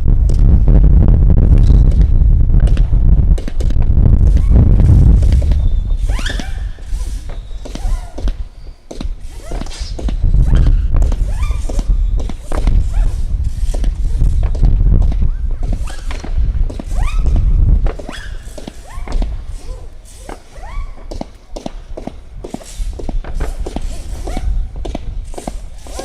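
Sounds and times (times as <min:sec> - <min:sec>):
heavy low rumble: 0:00.0 - 0:07.6, 0:10.0 - 0:17.9
fireworks shots and bursts: 0:00.0 - 0:26.0
firework whistles rising: 0:04.2 - 0:21.3.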